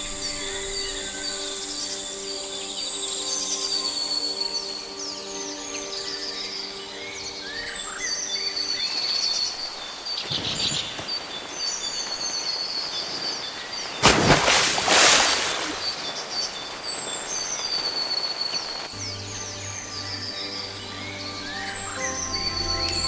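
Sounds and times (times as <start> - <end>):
small birds chirping: 16.0 - 23.0.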